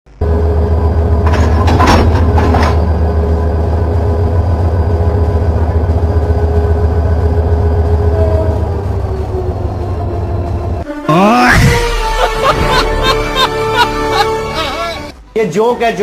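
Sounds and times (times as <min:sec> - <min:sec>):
steady hum: 0:00.1 - 0:09.2
train rumbling: 0:00.1 - 0:15.2.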